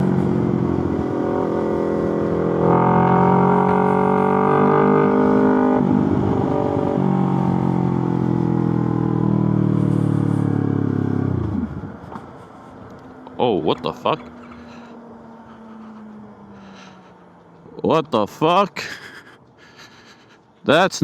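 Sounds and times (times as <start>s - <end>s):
motorcycle engine running: 0.0s - 12.2s.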